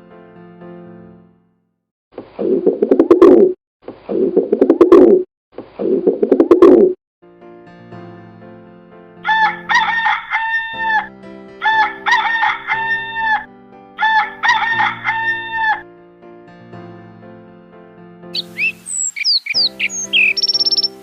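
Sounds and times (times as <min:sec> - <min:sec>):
soft background music: 0:07.4 - 0:21.0
rooster crowing: 0:09.2 - 0:15.8.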